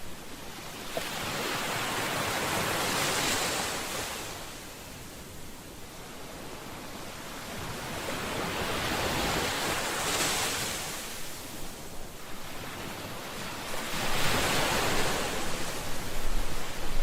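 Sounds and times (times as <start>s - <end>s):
ocean waves breaking on shore: 0.0s - 17.0s
wind rumble on microphone: 6.3s - 17.0s.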